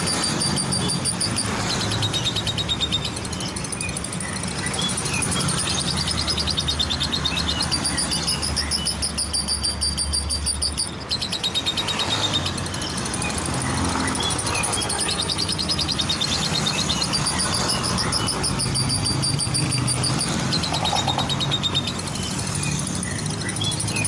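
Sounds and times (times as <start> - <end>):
lovebirds chattering: 0.0 - 24.0.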